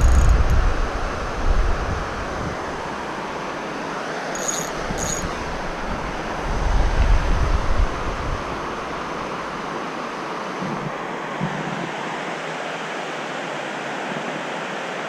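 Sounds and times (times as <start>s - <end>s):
wind buffeting microphone: 0.0s - 3.1s, 4.7s - 9.2s
flowing stream: 0.0s - 15.0s.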